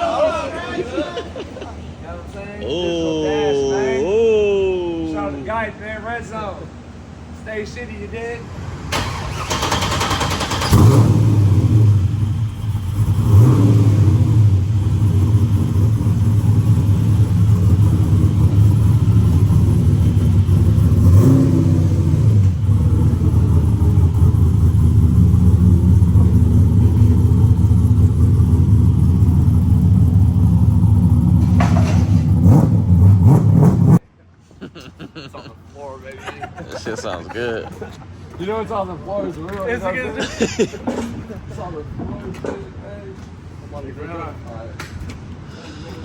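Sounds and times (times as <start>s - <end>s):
loud car engine running: 9.0s - 34.0s.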